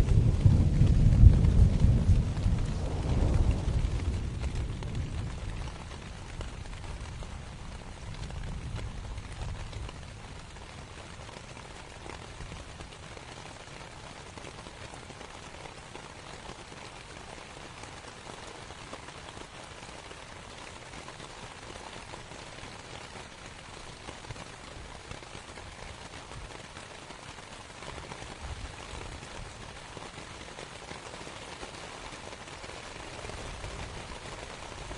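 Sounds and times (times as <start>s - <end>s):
distant thunder rumble: 0.0s - 9.8s
rain pattering on a tent: 0.0s - 34.9s.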